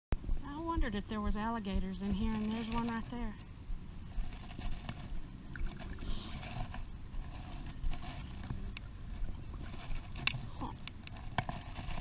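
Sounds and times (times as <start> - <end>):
water and wind against hull: 0.2 - 12.0
water splashing: 5.0 - 6.7.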